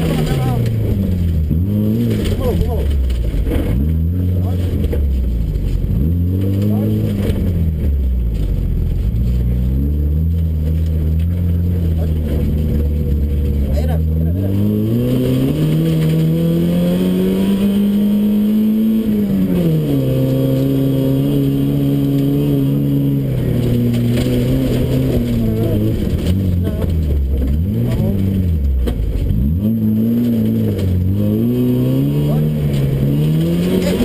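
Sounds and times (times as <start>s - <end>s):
car engine under hard driving: 0.0s - 34.0s.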